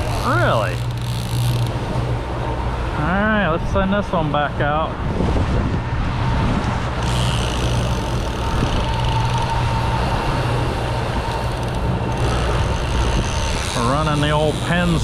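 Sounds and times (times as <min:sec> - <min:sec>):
boat engine humming: 0:00.0 - 0:15.0
wind and water hiss: 0:00.0 - 0:15.0
faint thin whine: 0:07.0 - 0:15.0.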